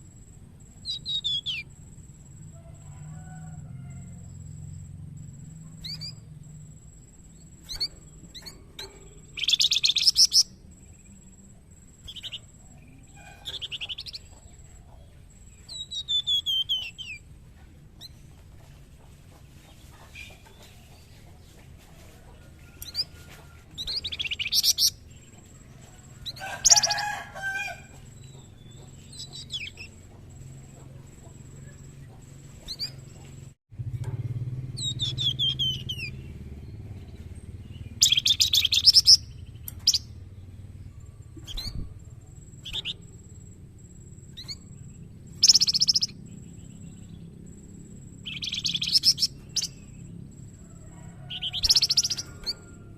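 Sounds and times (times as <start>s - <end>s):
songbird chirping and trilling: 0.0s - 52.9s
steady low hum: 0.0s - 52.9s.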